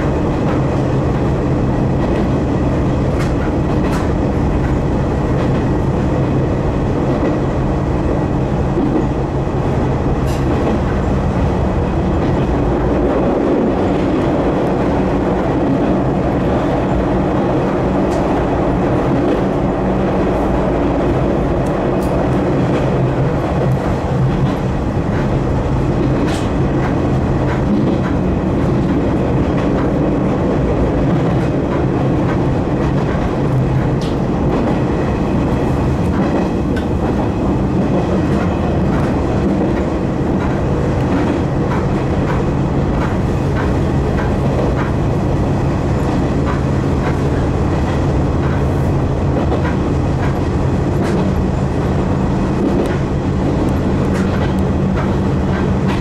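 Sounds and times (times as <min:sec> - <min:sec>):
train motors humming: 0:00.0 - 0:56.0
wheels clicking over rail joints: 0:36.0 - 0:45.1, 0:52.6 - 0:56.0.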